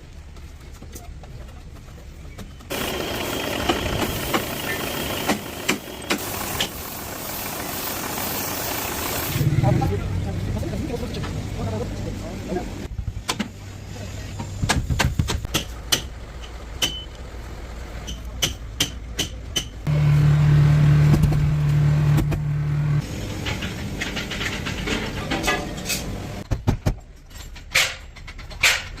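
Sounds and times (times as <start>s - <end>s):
machine motor running: 2.7s - 9.8s, 19.9s - 23.0s
metal knocks and clanks: 23.3s - 29.0s.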